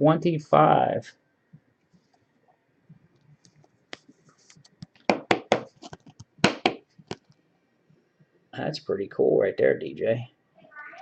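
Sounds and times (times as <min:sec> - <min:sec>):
hands handling trading cards: 0:03.4 - 0:07.4
sharp taps and scrapes: 0:03.4 - 0:07.4.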